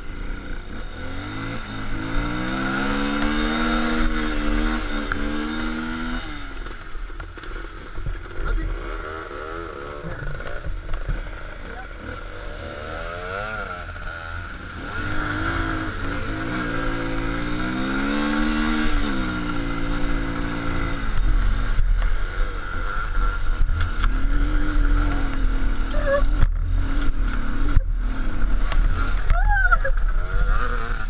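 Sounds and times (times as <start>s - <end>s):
vehicle engine revving: 0.0s - 31.0s
people talking: 24.5s - 26.3s, 29.3s - 30.8s.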